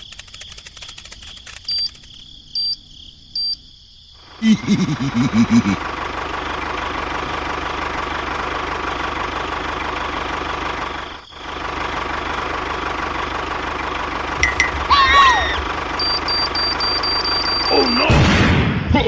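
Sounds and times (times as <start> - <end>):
engine running steadily: 4.2 - 18.1.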